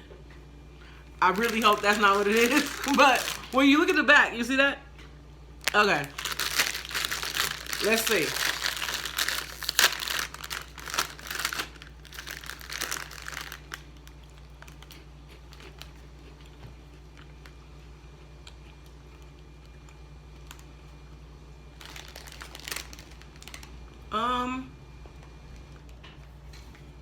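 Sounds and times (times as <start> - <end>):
plastic snack bag crinkling: 1.2 - 4.0, 5.6 - 17.6, 21.7 - 23.8.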